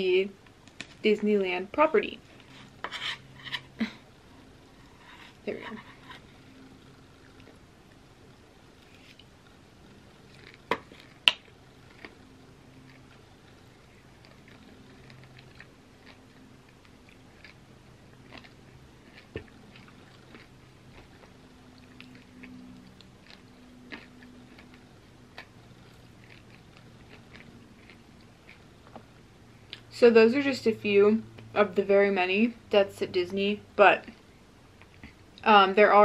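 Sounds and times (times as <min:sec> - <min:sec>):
wet chewing and mouth clicks: 0:10.2 - 0:29.9.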